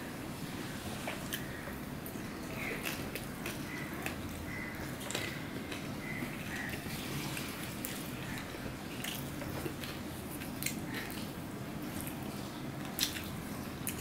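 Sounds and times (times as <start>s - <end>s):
chewing and wet lip smacks: 12.8s - 14.0s.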